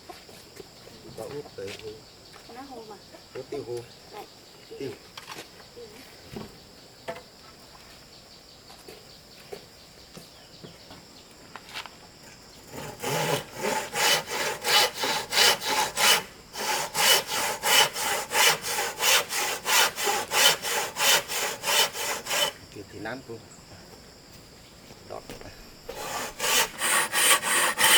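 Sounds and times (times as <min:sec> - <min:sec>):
insects droning: 0:00.0 - 0:27.9
hand saw cutting wood: 0:12.6 - 0:22.6, 0:25.9 - 0:27.9.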